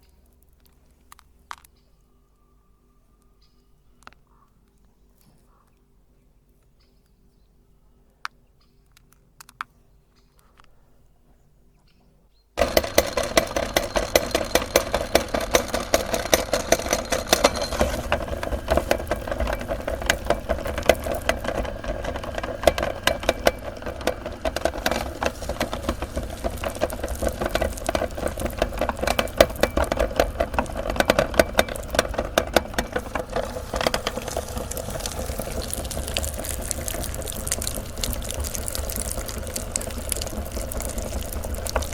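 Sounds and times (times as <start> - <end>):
candy crunching in auger: 12.6 - 41.9
meat grinder motor running: 12.6 - 41.9.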